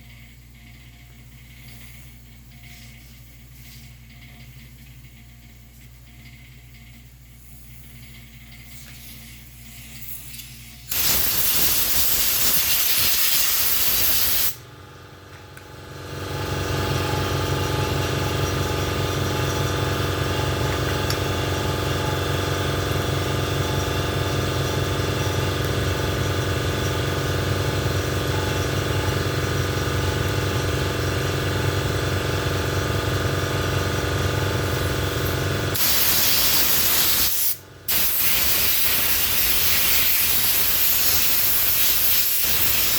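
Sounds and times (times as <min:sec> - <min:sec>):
air compressor droning: 0:07.1 - 0:42.9
air blow gun hissing: 0:09.9 - 0:14.6, 0:35.7 - 0:42.9.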